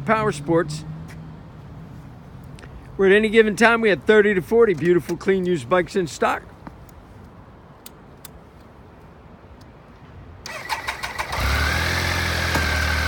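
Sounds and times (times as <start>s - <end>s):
motorcycle starter cranking: 10.5s - 13.0s
motorcycle engine idling: 11.0s - 13.0s.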